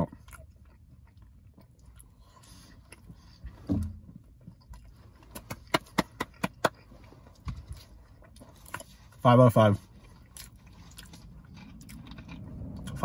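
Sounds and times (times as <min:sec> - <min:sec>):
person chewing food: 0:00.0 - 0:09.2, 0:09.8 - 0:13.0.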